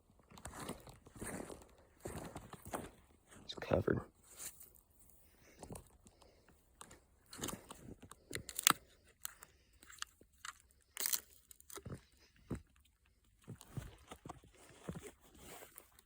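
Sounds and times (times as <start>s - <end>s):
plastic clicks and rustles: 5.6s - 11.9s.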